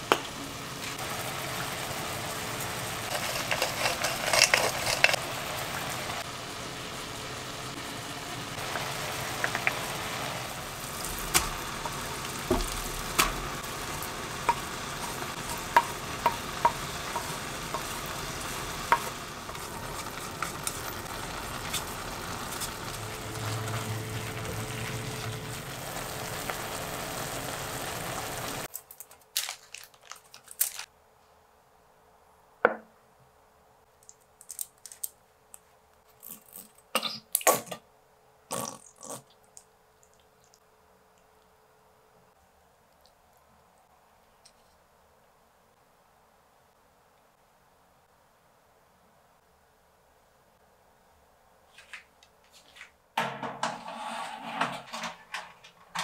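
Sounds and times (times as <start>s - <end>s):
sauce sizzling in a frying pan: 0.0s - 28.7s
ingredients scraping: 3.0s - 5.2s, 28.7s - 30.9s, 53.6s - 56.0s
spatula tapping a pan: 14.4s - 20.6s.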